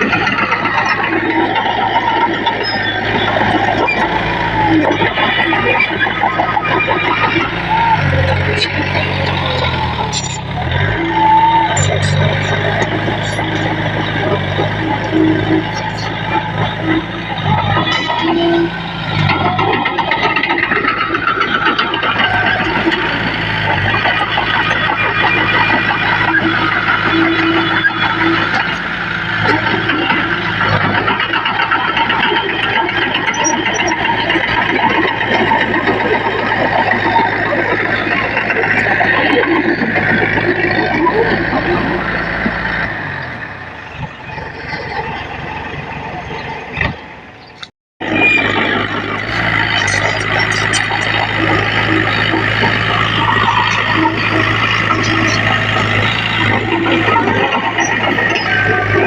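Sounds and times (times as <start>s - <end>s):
bulldozer diesel engine running: 0.0s - 59.0s
continuous clattering: 0.0s - 59.0s
mechanical clatter: 46.8s - 59.0s.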